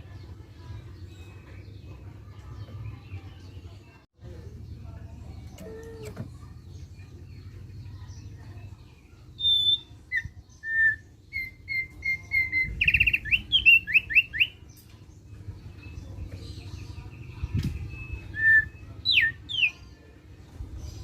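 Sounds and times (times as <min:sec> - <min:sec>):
bird chattering song: 0:00.0 - 0:21.0
bird whistled notes: 0:09.4 - 0:14.6.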